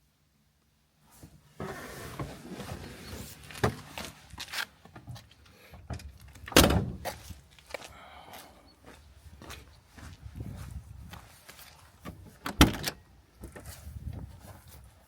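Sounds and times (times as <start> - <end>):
car door shutting thud: 6.6 - 7.0.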